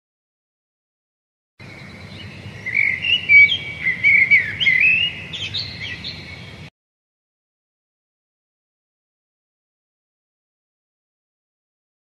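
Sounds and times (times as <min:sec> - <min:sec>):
birds chirping: 0:01.6 - 0:06.7
faint low background noise: 0:01.6 - 0:06.7.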